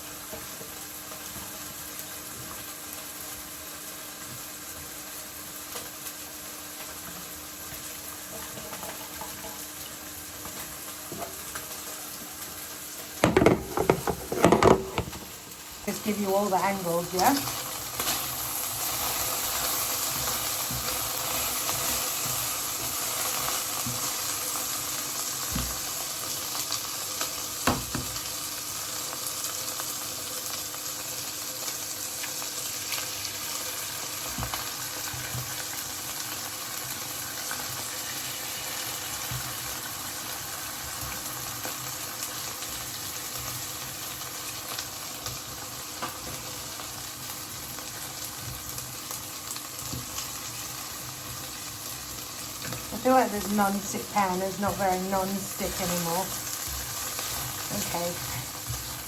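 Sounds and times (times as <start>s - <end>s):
chicken sizzling in frying pan: 0.0s - 59.0s
utensil knocking against pan: 13.2s - 15.3s.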